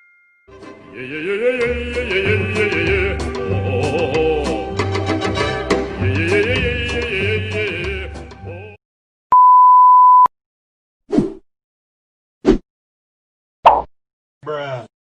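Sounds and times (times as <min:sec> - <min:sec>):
music clip: 0:00.0 - 0:08.7
high censor bleep: 0:09.3 - 0:10.3.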